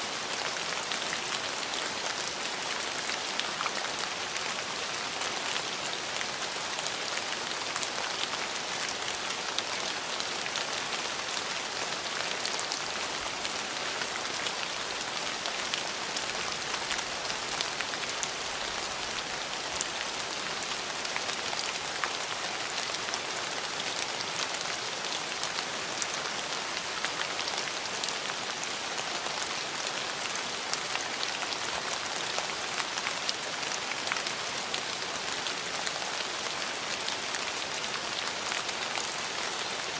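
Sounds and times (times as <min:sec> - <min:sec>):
rain on hard surfaces: 0:00.0 - 0:39.9.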